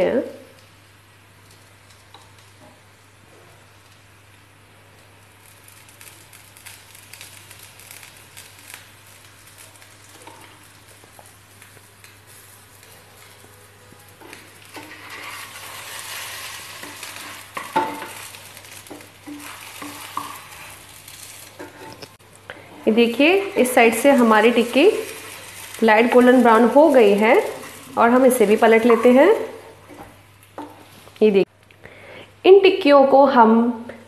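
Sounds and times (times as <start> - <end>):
patties sizzling in oil: 0.0 - 31.5
wooden spatula scraping pan: 14.2 - 30.1.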